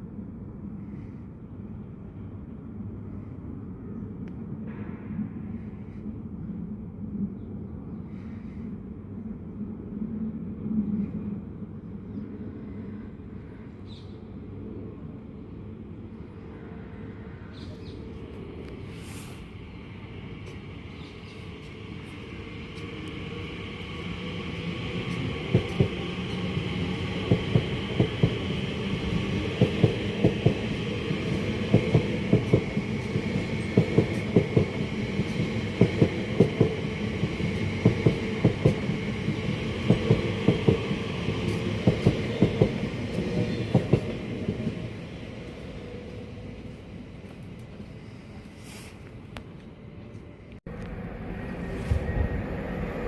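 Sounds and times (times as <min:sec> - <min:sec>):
train rumble: 0:15.9 - 0:53.0.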